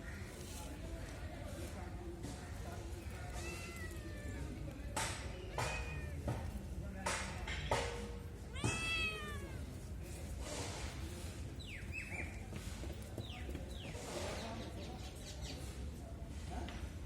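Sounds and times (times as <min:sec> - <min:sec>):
cat meowing: 0:08.4 - 0:09.8.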